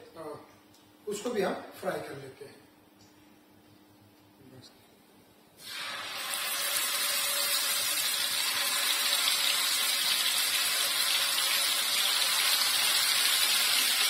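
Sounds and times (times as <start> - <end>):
chicken frying in hot oil: 5.6 - 14.0.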